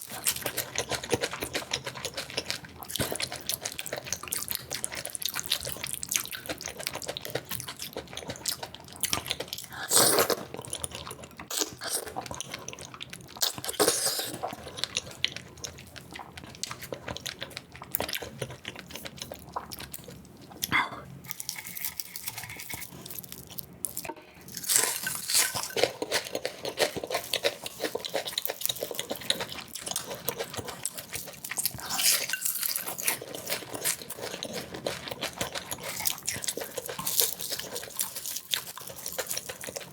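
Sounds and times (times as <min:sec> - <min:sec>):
wet chewing and smacking: 0:00.0 - 0:39.9
crunching and slurping: 0:21.3 - 0:39.9.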